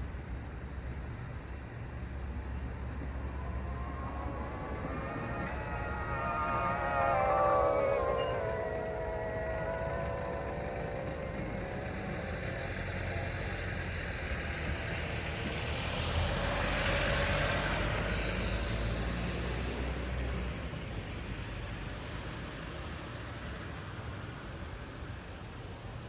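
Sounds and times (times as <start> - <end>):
low traffic rumble: 0.0 - 26.0
vehicle passing by: 2.6 - 20.7.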